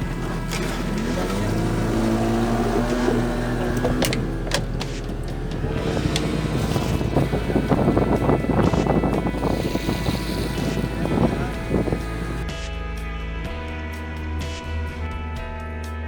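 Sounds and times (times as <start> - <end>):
motor engine running: 0.0 - 12.4.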